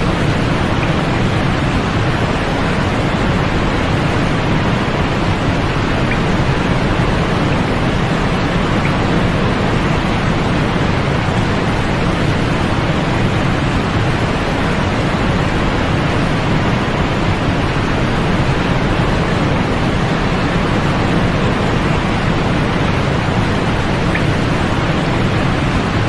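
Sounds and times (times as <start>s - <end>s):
white noise hiss: 0.0s - 26.0s.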